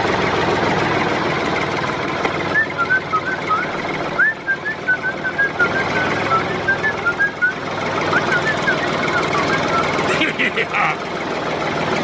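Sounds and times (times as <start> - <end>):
small motor rattling: 0.0 - 12.0.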